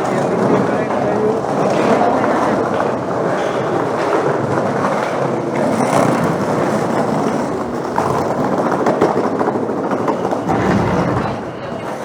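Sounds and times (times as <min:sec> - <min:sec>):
street hubbub: 0:00.0 - 0:12.0
wheels rolling over street: 0:00.0 - 0:12.0.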